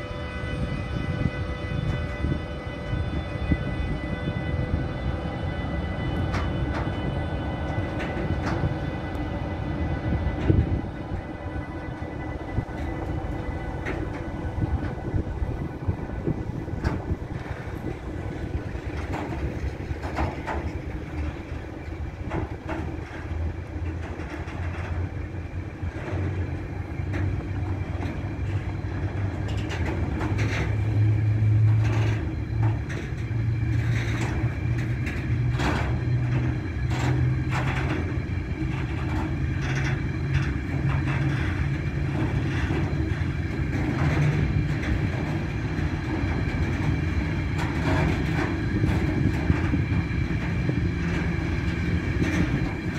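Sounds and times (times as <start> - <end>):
freight train rumble: 0.0 - 52.9
wheel clicks on rails: 16.6 - 52.9.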